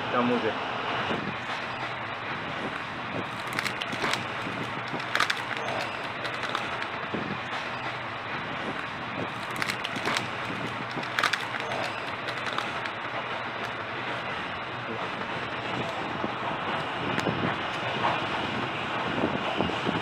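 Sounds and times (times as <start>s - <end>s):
train rumble and hiss: 0.0s - 20.0s
sharp clicks and knocks: 3.3s - 7.0s, 9.3s - 13.8s.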